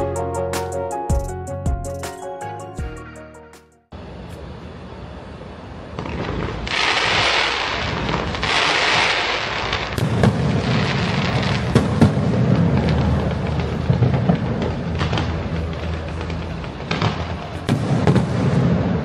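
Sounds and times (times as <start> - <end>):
fireworks bangs and booms: 5.9 - 19.0
fireworks crackling hiss: 5.9 - 19.0.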